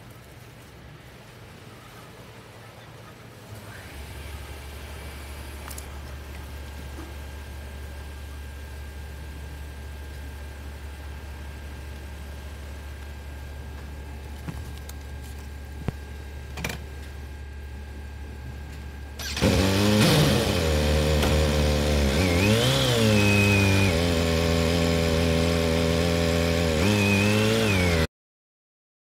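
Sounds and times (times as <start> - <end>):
high supercharger whine: 3.6 - 28.1
motorcycle engine idling and revving: 19.2 - 28.1.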